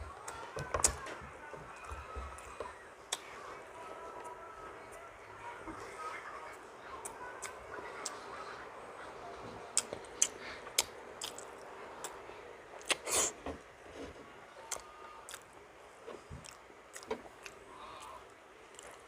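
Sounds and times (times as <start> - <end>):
chewing with wet lip smacks: 9.8 - 12.2.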